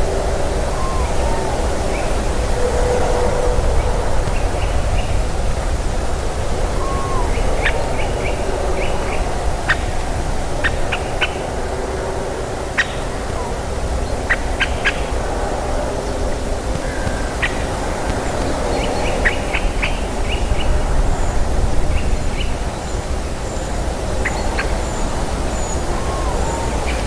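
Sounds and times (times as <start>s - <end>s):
birds calling: 16.0s - 21.4s, 22.0s - 27.0s.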